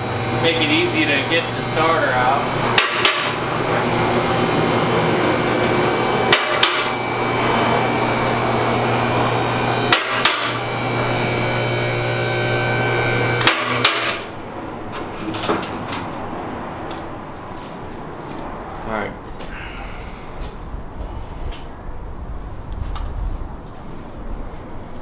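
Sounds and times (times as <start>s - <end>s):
hydraulic pump running: 0.0s - 15.8s.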